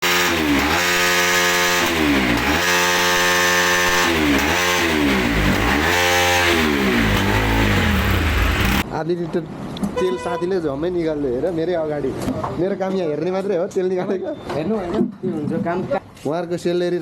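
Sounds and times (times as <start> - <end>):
motorcycle engine revving: 0.0 - 8.8.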